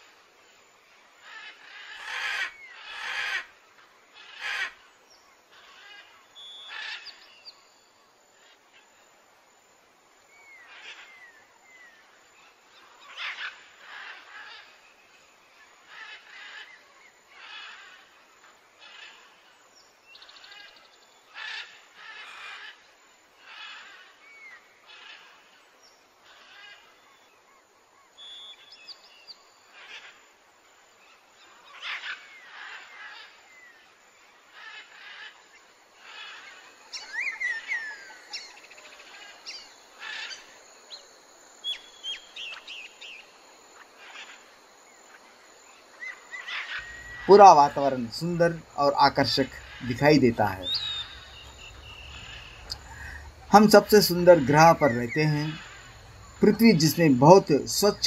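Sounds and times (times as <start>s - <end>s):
birds calling: 10.4s - 18.2s, 31.1s - 58.0s.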